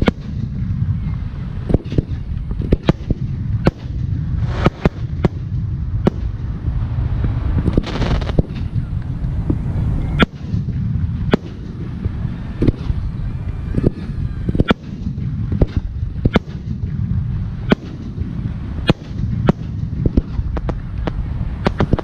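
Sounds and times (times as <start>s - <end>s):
firework bangs: 0.0s - 0.9s, 1.5s - 13.1s, 13.7s - 22.0s
low rumble: 0.0s - 22.0s
faint whistling glides: 0.6s - 2.8s, 8.6s - 16.3s.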